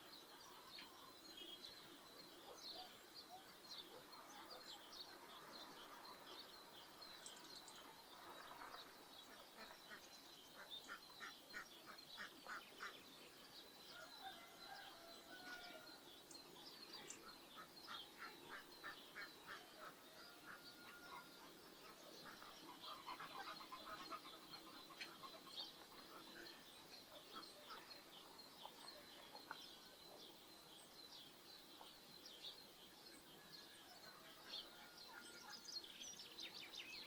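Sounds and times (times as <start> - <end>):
small birds chirping: 0.0 - 37.0
faint ducks quacking: 9.3 - 13.0, 17.2 - 29.6.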